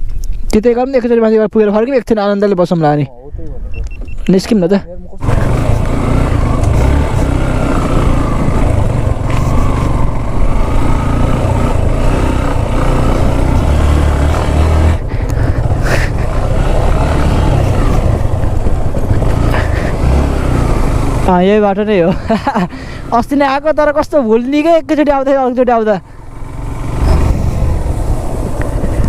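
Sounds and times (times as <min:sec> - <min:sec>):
motorcycle riding on gravel: 0:05.2 - 0:29.0
wind rumble on microphone: 0:26.9 - 0:29.0.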